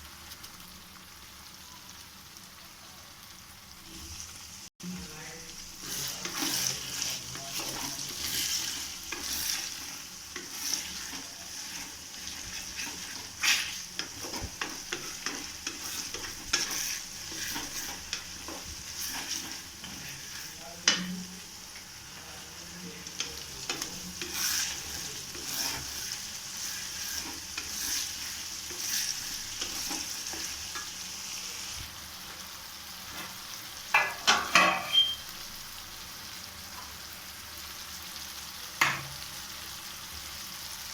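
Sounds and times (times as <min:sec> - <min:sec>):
curry sizzling in a pan: 0:00.0 - 0:40.9
utensil scraping a pan: 0:05.8 - 0:21.3, 0:23.2 - 0:31.8.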